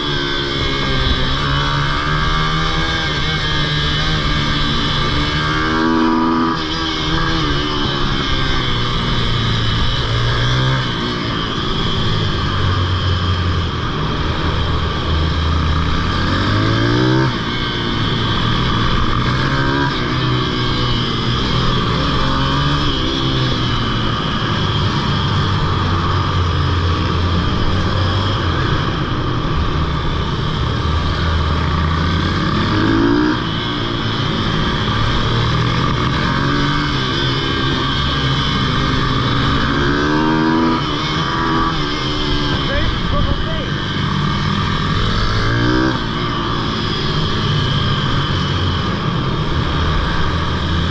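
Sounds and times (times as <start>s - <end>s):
pitbike engine revving: 0.0s - 50.9s.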